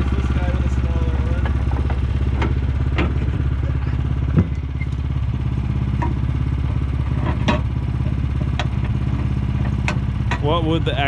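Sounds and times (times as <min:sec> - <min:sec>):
engine idling: 0:00.0 - 0:11.0
knocks and clunks: 0:01.2 - 0:05.1, 0:05.9 - 0:10.6.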